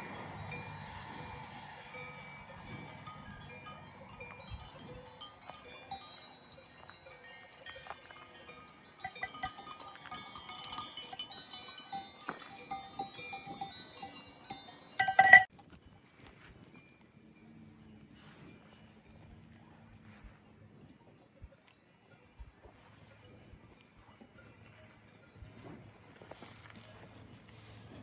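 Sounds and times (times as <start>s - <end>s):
cowbells clanking: 0.0s - 15.5s, 21.3s - 27.7s.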